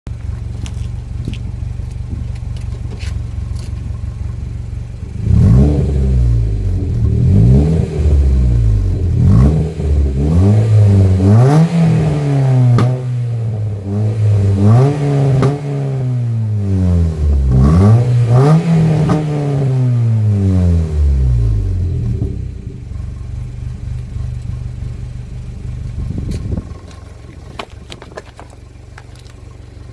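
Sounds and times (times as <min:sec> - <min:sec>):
car engine idling and revving: 0:00.1 - 0:29.9
exhaust pops and bangs: 0:11.8 - 0:13.1, 0:26.0 - 0:29.4.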